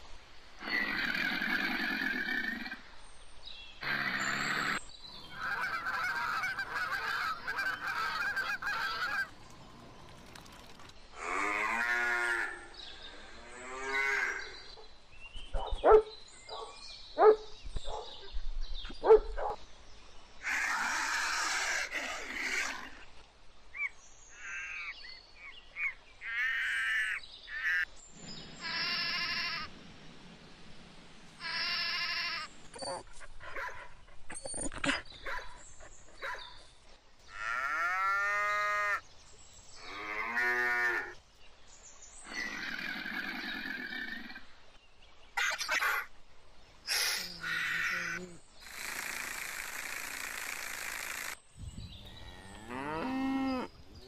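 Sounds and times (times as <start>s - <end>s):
cattle mooing: 52.0s - 53.7s.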